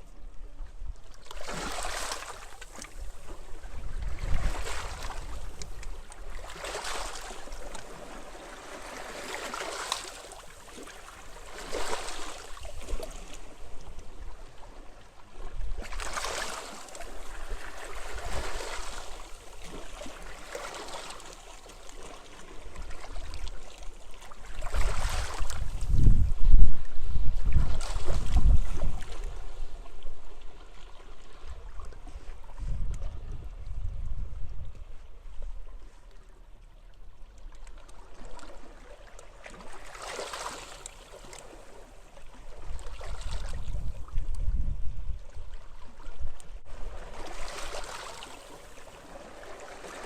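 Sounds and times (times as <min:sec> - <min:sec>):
waves washing onto beach: 0:01.2 - 0:03.5, 0:04.1 - 0:13.8, 0:15.8 - 0:25.9, 0:46.7 - 0:50.0
wind rumbling on microphone: 0:02.9 - 0:06.7, 0:24.4 - 0:36.0, 0:42.4 - 0:47.6.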